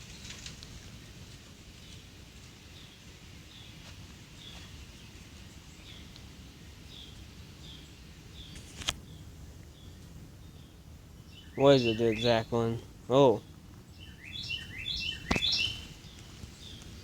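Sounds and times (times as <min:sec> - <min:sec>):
low outdoor rumble: 0:00.0 - 0:17.0
bird chirping: 0:06.8 - 0:17.0
sharp click: 0:15.3 - 0:15.6.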